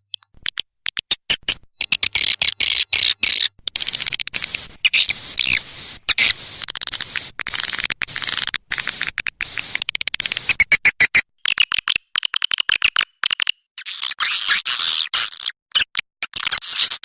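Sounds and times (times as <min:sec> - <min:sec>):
swiftlets twittering: 0:01.8 - 0:11.0.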